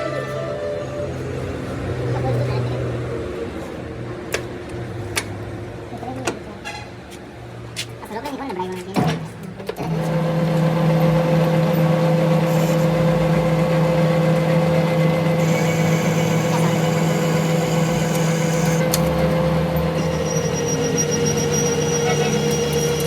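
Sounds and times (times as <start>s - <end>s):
workshop machine humming: 9.6s - 23.0s.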